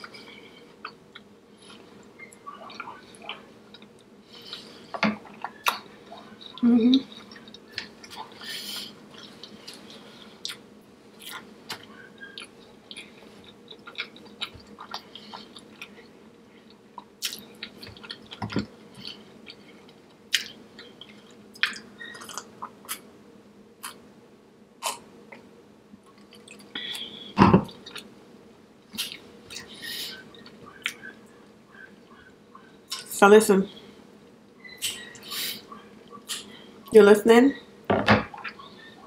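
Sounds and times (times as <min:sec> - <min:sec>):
person chewing with wet smacks: 0:00.0 - 0:23.1, 0:23.8 - 0:24.0, 0:26.0 - 0:28.1, 0:28.8 - 0:33.1, 0:38.3 - 0:38.9.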